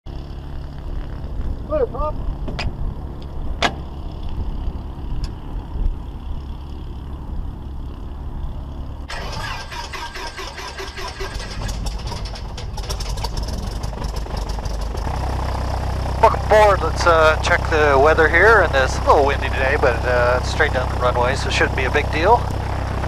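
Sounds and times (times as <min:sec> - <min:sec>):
aircraft engine cranking and starting: 0:09.0 - 0:23.0.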